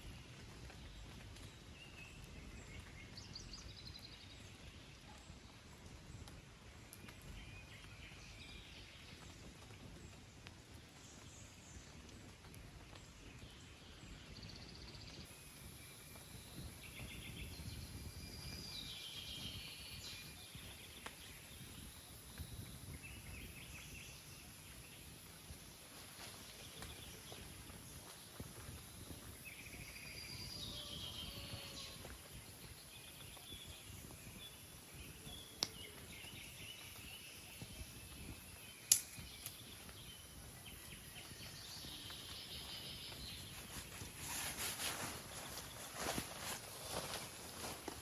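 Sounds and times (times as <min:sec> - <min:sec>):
faint outdoor background noise: 0:00.0 - 0:48.0
high steady hiss: 0:15.2 - 0:48.0
birds chirping: 0:15.3 - 0:48.0.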